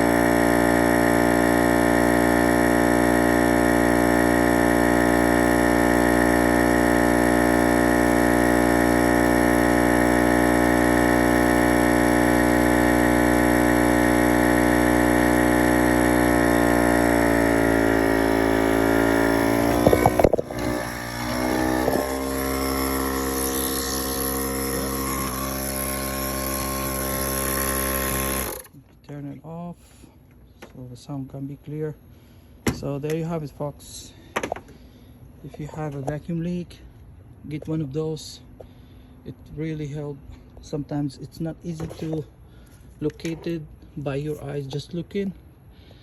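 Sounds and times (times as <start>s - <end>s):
air pump humming: 0.0s - 28.8s.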